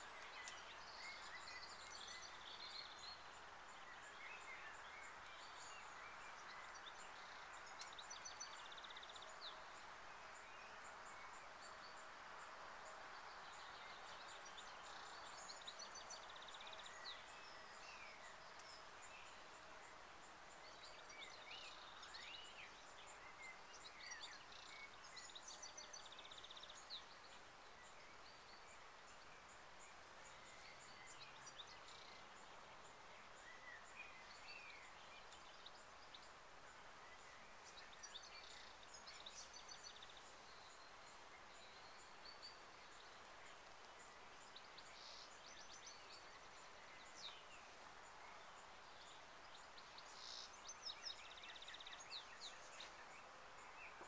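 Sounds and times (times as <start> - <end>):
songbirds chirping and singing: 0.0 - 12.1, 12.9 - 54.0
soft steady hiss: 0.0 - 54.0.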